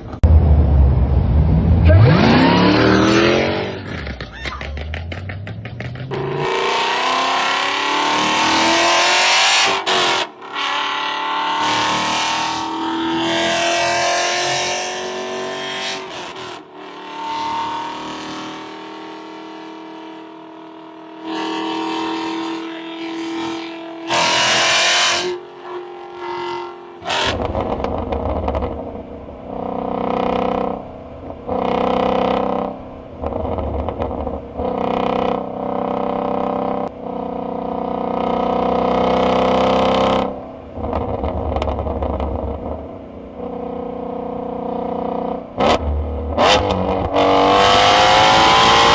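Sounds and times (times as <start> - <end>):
car accelerating: 0.1 - 48.9
engine revving in bursts: 1.9 - 4.0.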